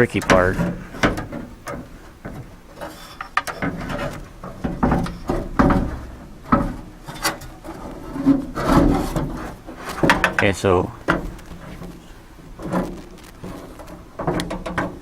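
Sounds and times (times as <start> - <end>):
knocks and clunks on truck door: 0.0 - 2.5, 3.5 - 7.0
glass rubbing in door channels: 0.0 - 15.0.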